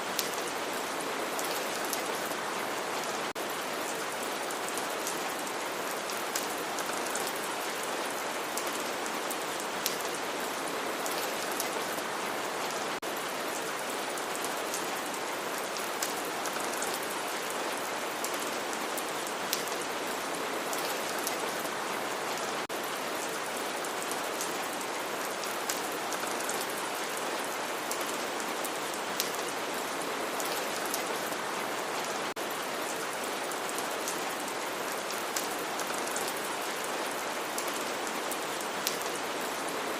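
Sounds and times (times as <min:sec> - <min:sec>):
steady rain hiss: 0:00.0 - 0:39.9
raindrops ticking on a surface: 0:18.2 - 0:19.9.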